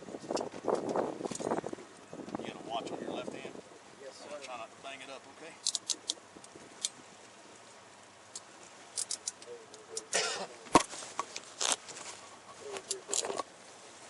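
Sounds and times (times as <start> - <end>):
clothing rustling: 10.6 - 12.9.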